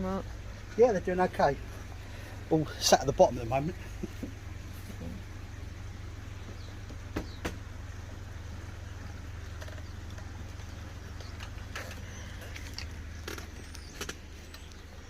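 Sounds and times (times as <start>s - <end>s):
steady low hum: 0.0s - 15.0s
faint knock: 6.5s - 7.6s.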